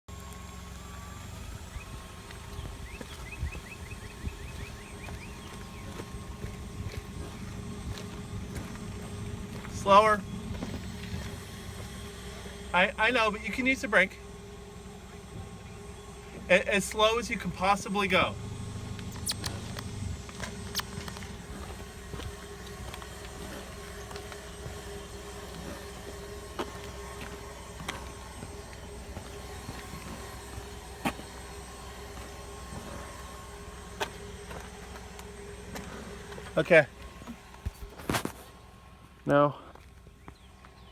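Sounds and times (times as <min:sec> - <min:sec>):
car rolling with low rumble: 0:00.0 - 0:40.9
short high tire squeaks: 0:01.2 - 0:38.8
sharp clicks: 0:18.9 - 0:21.4.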